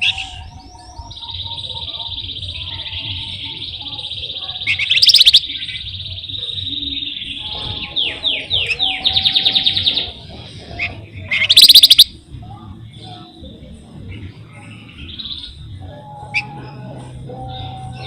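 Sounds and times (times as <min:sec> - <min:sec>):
songbird trilling: 0:00.0 - 0:12.1.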